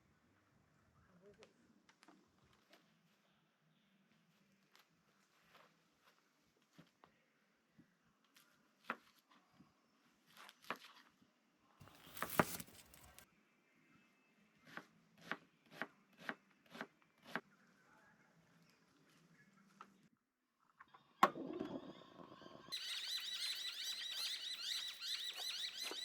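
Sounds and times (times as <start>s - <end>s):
rustling: 11.8s - 13.2s.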